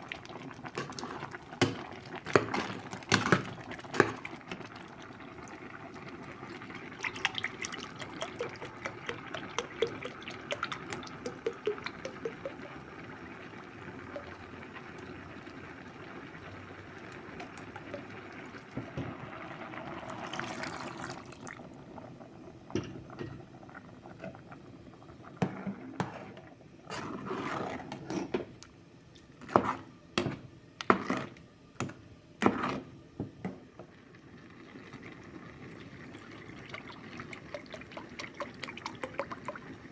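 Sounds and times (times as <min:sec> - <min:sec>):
liquid pouring and splashing: 0:00.0 - 0:15.5, 0:16.6 - 0:21.6, 0:34.7 - 0:39.9.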